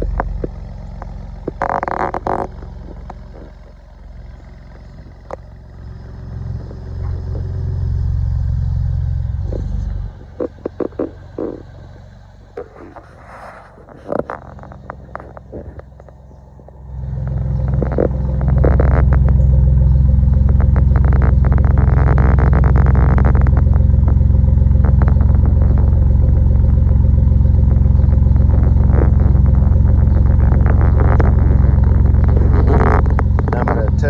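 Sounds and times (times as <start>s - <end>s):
exhaust deep drone: 0.0s - 34.0s.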